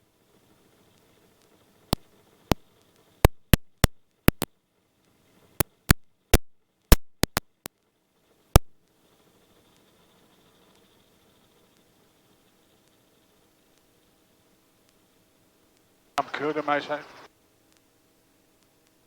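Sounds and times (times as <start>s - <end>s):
faint background hum: 0.0s - 19.0s
sharp irregular clicks: 3.2s - 4.5s, 5.6s - 7.7s.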